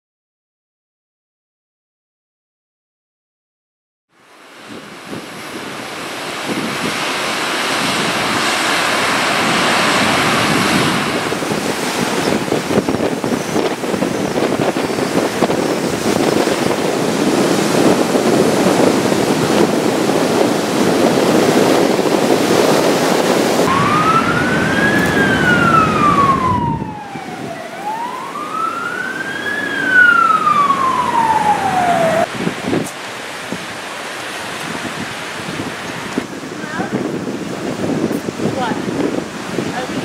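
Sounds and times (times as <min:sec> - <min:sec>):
heavy wind: 0:04.2 - 0:40.0
surf: 0:04.6 - 0:28.6
emergency vehicle siren wailing: 0:23.3 - 0:32.3.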